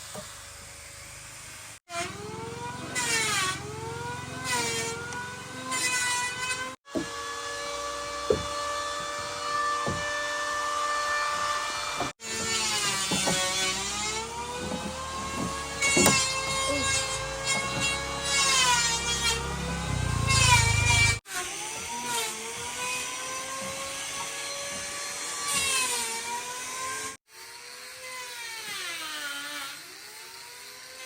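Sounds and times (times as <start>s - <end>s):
power saw cutting wood: 0.0s - 31.0s
sharp knocks: 14.6s - 16.6s.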